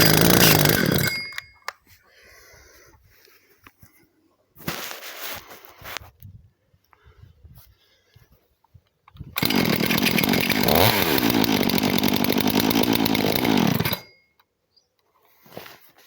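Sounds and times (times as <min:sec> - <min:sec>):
chainsaw engine running: 0:00.0 - 0:01.3, 0:09.4 - 0:14.2.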